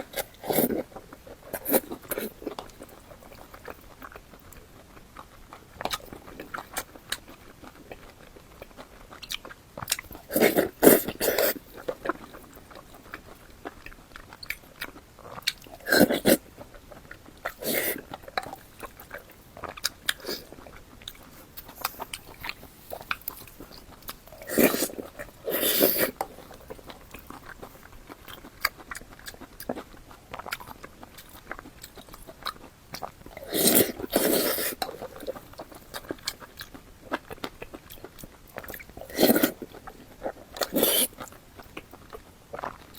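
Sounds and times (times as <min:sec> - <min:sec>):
biting and chewing: 0:00.0 - 0:42.9
wet mouth clicks: 0:40.6 - 0:41.3.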